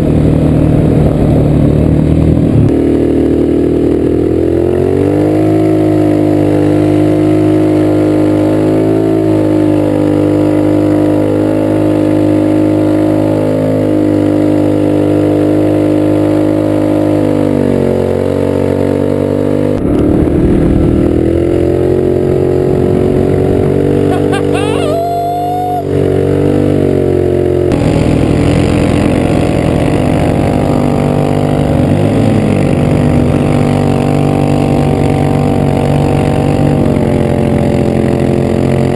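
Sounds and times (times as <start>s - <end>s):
go-kart engine running under load: 0.0s - 38.9s.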